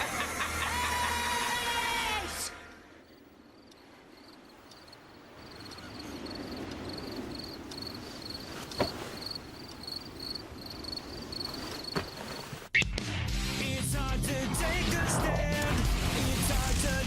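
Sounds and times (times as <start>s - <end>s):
insect chirping: 3.0s - 12.6s
low rumble: 14.0s - 17.0s.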